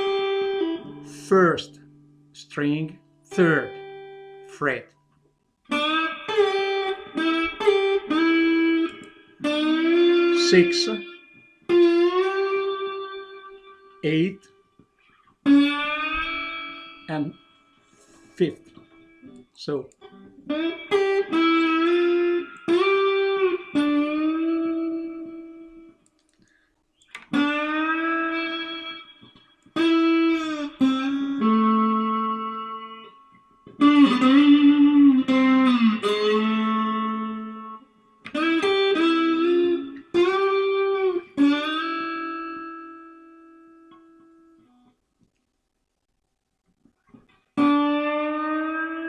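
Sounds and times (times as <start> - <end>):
slide guitar: 0.0 - 4.9, 5.7 - 26.0, 27.0 - 44.7, 47.1 - 49.0.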